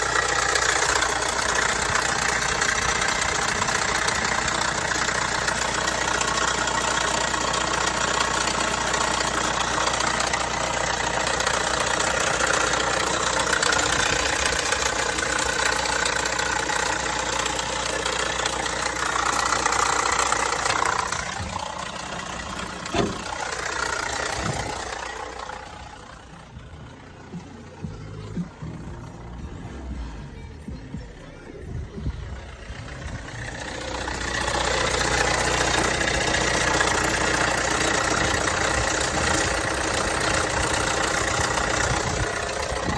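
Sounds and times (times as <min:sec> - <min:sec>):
car engine running: 0:00.0 - 0:42.9
car rattle: 0:00.0 - 0:42.9.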